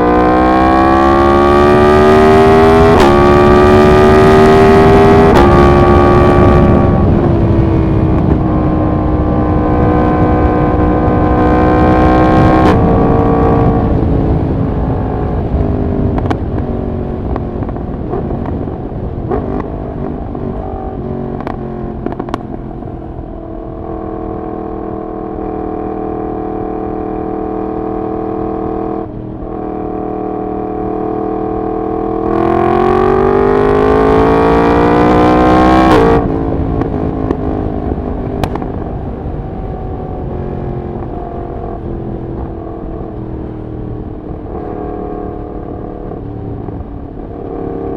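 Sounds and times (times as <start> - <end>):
motorcycle engine: 0.0 - 47.9
exhaust cracks: 36.2 - 39.2.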